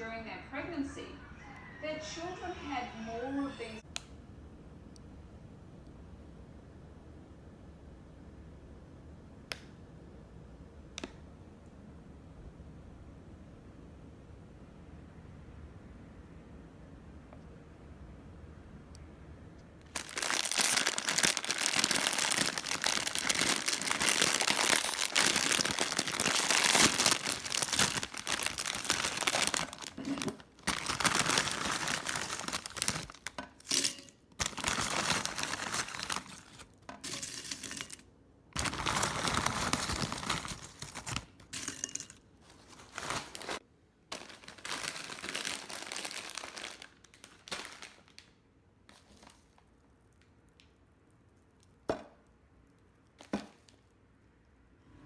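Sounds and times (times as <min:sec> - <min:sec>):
crinkling rustling handling noise: 0:19.8 - 0:38.0, 0:38.6 - 0:51.8.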